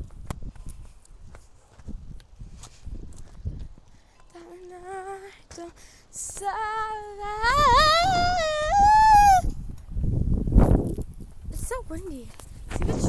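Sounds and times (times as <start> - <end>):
wind rumble on microphone: 0.0 - 5.2, 6.2 - 13.0
girl humming: 6.3 - 9.5.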